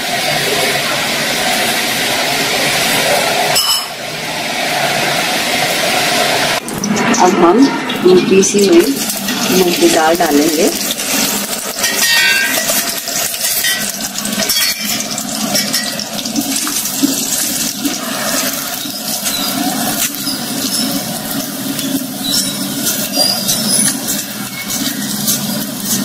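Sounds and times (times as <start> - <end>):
lentils sizzling in fat: 4.3 - 26.0
ladle scraping pan: 6.8 - 26.0.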